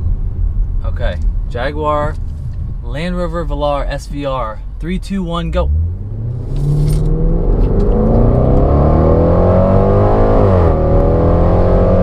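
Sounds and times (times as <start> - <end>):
car engine accelerating: 5.3 - 12.0.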